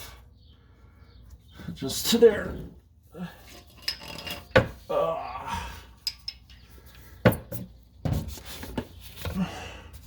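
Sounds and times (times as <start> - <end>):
metal tools clinking: 3.4 - 4.8, 6.0 - 7.7.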